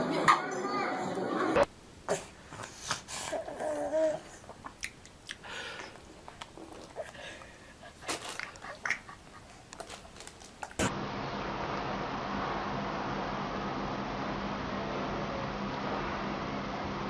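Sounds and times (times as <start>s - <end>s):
baby vocal sound: 2.9s - 4.6s
baby mouth smacks and clicks: 4.5s - 7.0s.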